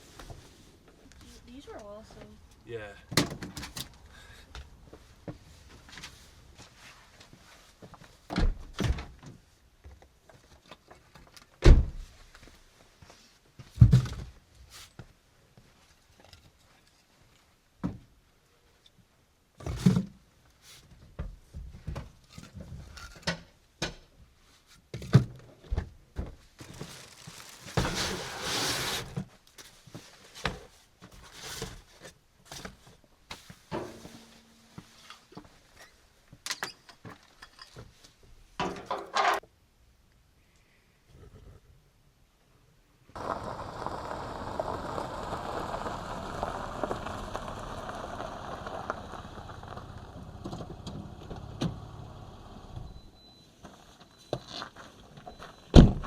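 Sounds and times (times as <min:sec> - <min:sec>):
rush of noise: 0:43.2 - 0:50.5.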